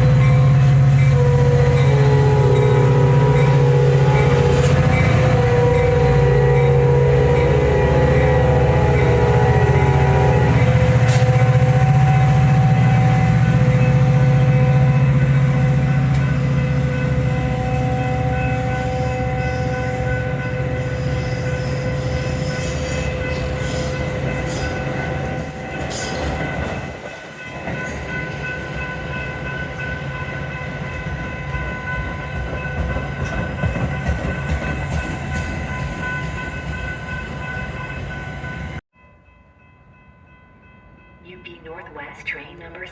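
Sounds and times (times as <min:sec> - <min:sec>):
locomotive horn chord: 0:00.0 - 0:26.8
train running noise and whine: 0:00.0 - 0:38.8, 0:39.6 - 0:42.9.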